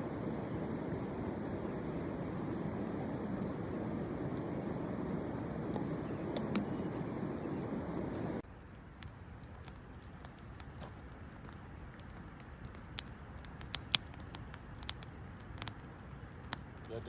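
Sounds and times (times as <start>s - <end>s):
wind buffeting microphone: 0.0s - 8.4s
sharp crackles and clicks: 5.7s - 7.5s, 8.1s - 17.0s.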